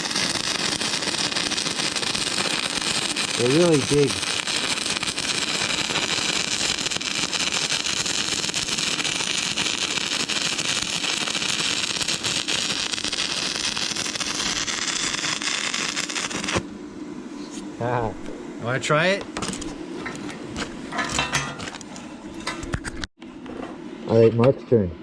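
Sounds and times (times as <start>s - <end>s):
welding arc crackling sizzle: 0.0s - 16.7s, 17.8s - 23.1s.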